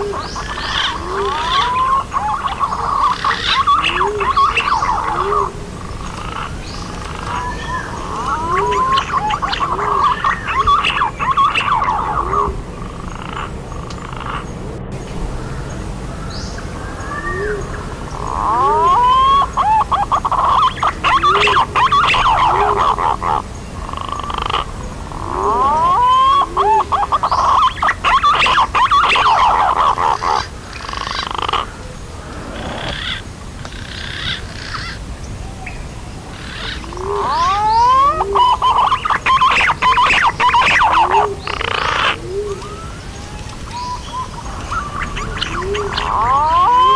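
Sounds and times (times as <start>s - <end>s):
pigeon whistled calls: 0.0s - 5.5s, 6.4s - 12.6s, 17.0s - 23.4s, 25.2s - 30.4s, 36.6s - 46.9s
rapid bird chattering: 0.0s - 14.6s, 18.0s - 31.8s, 36.3s - 42.8s, 43.7s - 46.9s.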